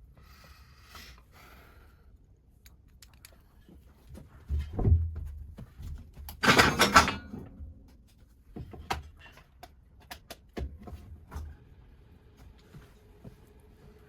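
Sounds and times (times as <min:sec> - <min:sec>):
handling knocks and clicks: 0:04.6 - 0:11.0.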